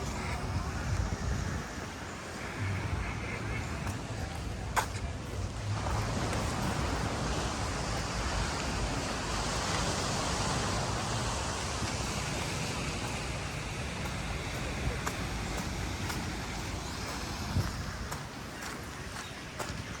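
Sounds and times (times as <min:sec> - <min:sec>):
rain: 0:00.0 - 0:20.0
surf on the beach: 0:00.0 - 0:20.0
wind buffeting the microphone: 0:00.0 - 0:20.0.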